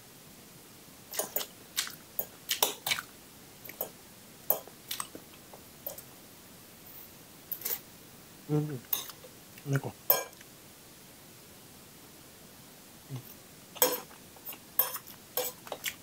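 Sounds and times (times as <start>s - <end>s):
cutlery tapping on bowl: 3.7s - 4.7s, 10.1s - 10.4s, 13.8s - 14.1s, 14.8s - 15.8s
person chewing noodles: 13.1s - 16.0s.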